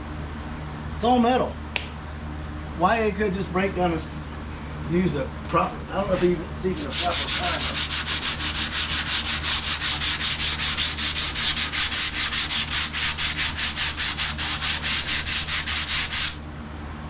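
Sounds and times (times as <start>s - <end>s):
hand sanding sheet metal: 6.7s - 16.4s.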